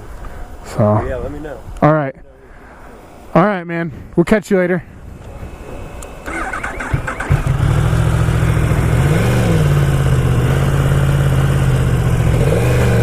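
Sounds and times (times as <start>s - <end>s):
motorcycle engine idling: 6.2s - 13.0s.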